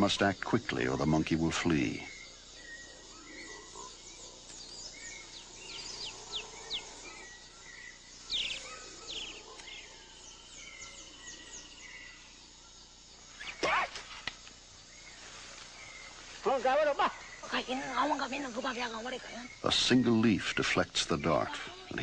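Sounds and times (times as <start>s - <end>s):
bird trill: 0.0s - 14.1s
insects hissing: 0.0s - 22.0s.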